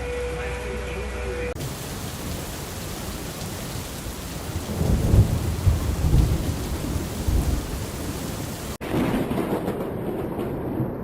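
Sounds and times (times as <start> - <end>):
heavy rain hissing: 0.0 - 8.8
thunder rumbling: 1.6 - 11.0.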